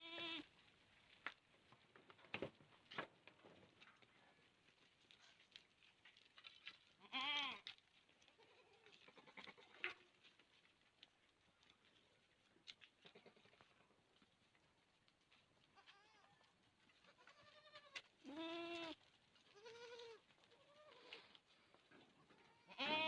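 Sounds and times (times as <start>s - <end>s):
goat bleating: 0.0s - 0.5s, 7.0s - 7.7s, 8.4s - 10.1s, 13.0s - 13.7s, 15.7s - 21.4s, 22.2s - 23.0s
faint rustles: 0.1s - 23.0s.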